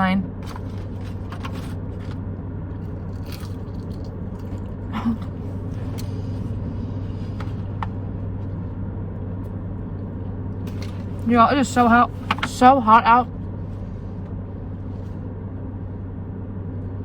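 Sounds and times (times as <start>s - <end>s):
low hum inside car: 0.0s - 17.0s
chewing and crunching food: 0.4s - 6.7s.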